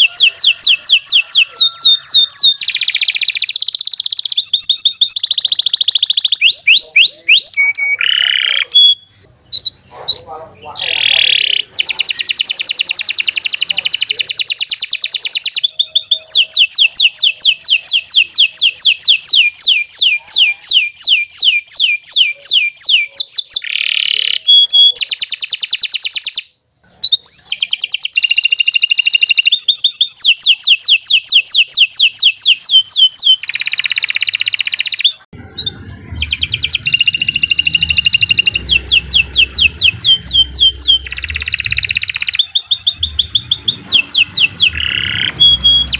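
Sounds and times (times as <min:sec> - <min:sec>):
canary singing trills: 0:00.0 - 0:45.9
low rumble: 0:35.4 - 0:45.9.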